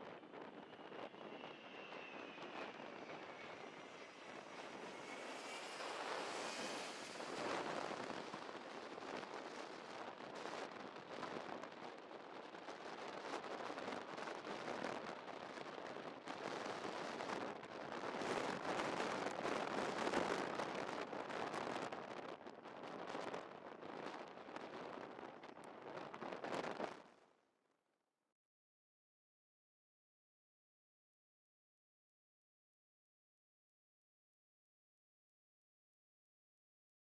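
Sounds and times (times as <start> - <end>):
high engine whine: 0.0 - 11.1
gusty wind buffeting microphone: 0.0 - 27.0
jet engines roaring: 0.1 - 10.3.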